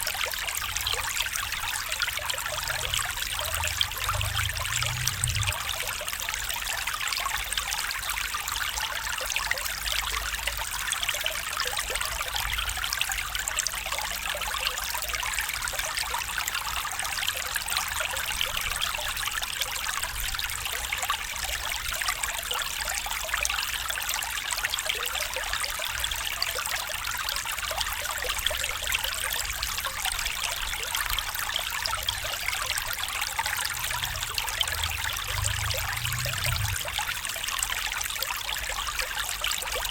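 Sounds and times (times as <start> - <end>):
stream babbling over stones: 0.0 - 39.9
faint low rumble: 0.9 - 6.1, 31.8 - 37.8.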